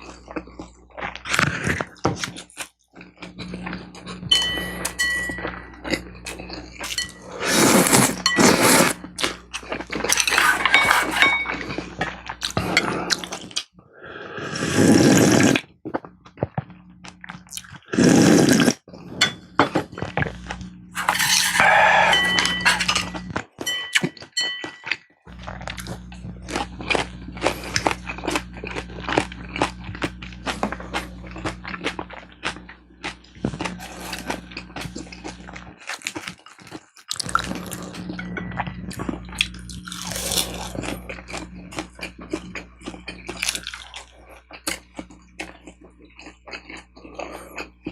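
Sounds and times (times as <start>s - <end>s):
low electrical hum: 0.0s - 47.9s
utensils clinking against bowls: 4.2s - 9.0s, 10.0s - 13.3s, 19.2s - 19.8s, 21.0s - 25.1s
slurping: 5.9s - 15.7s, 17.5s - 19.2s, 20.0s - 23.3s, 37.1s - 42.7s.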